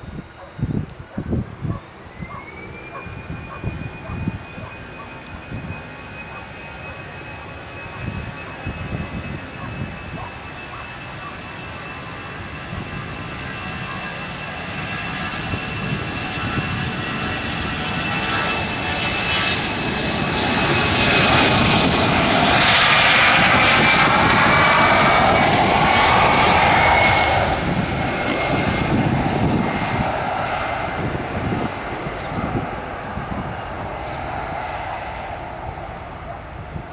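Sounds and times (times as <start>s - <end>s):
jet engines at take-off power: 0.0s - 36.9s.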